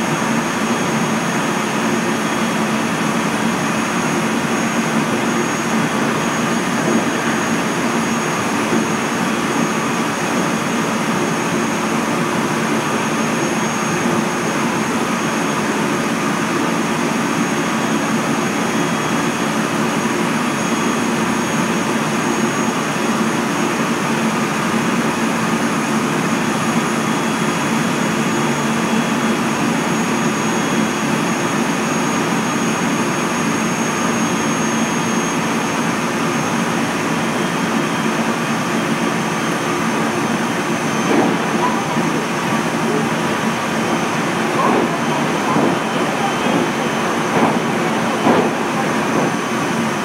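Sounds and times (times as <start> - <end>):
train running gear rumble: 39.8 - 50.0.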